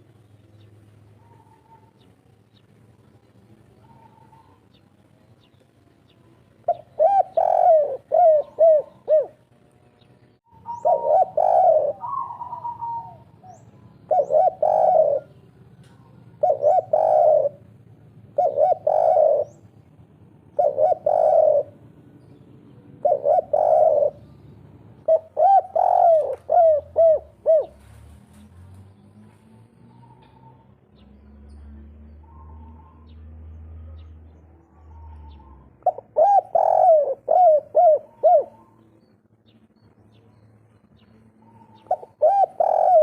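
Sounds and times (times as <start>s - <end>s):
dove cooing: 1.1s - 2.1s, 3.6s - 4.8s, 6.6s - 9.4s, 10.5s - 28.4s, 32.1s - 39.1s, 41.2s - 43.0s.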